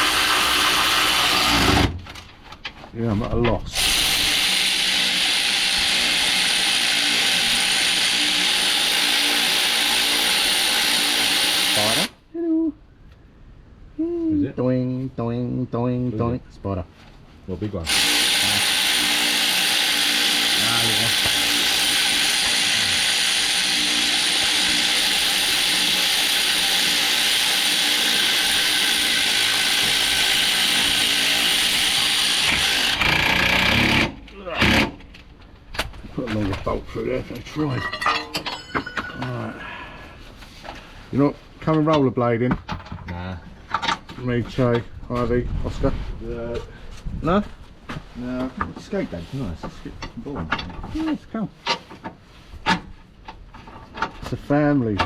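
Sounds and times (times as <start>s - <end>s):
cordless power tool running: 3.8s - 12.1s, 17.9s - 34.9s.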